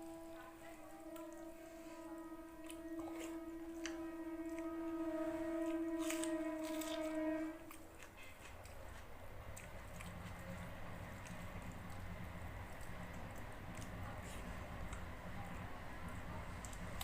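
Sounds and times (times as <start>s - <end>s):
steady horn-like tone: 0.0s - 8.1s
crunchy chewing of food: 5.6s - 17.0s.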